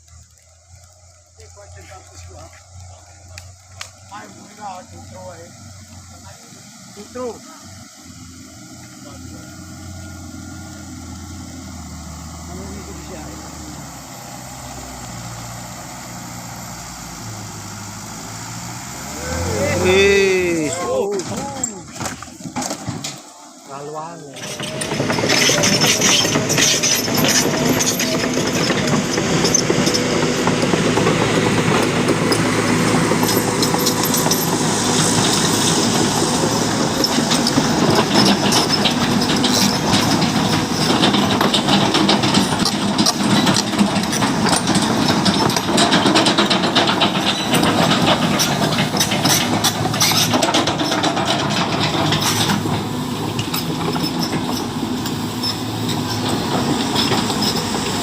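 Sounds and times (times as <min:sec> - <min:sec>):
heavy truck engine running: 0:00.0 - 0:58.0
metallic clanking and rattling: 0:24.4 - 0:58.0.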